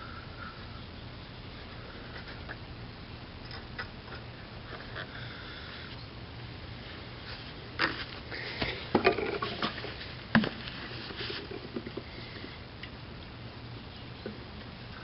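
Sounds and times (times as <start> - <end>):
faint low hum: 0.0 - 15.0
rustling: 6.8 - 12.6.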